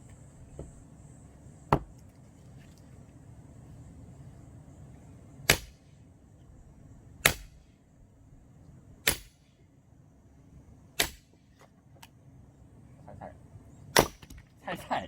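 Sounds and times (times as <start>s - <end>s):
axe chopping wood: 1.7s - 2.0s, 5.5s - 5.8s, 7.2s - 7.6s, 9.1s - 9.4s, 11.0s - 11.3s, 14.0s - 14.5s.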